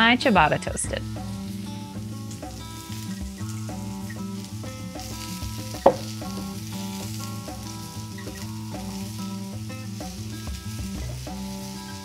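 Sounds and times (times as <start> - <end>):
soft background music: 0.0 - 12.0
vegetables sizzling in a skillet: 0.0 - 12.0
sharp knock: 5.8 - 6.1.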